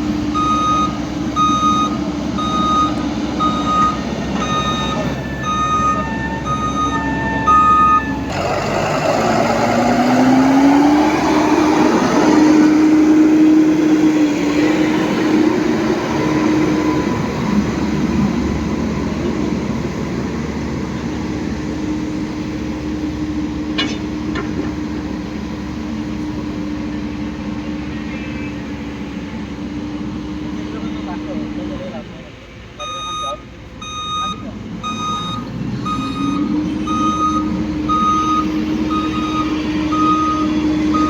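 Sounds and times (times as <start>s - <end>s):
heavy diesel engine running: 0.0s - 41.0s
reversing beeper: 0.3s - 8.4s, 32.8s - 41.0s.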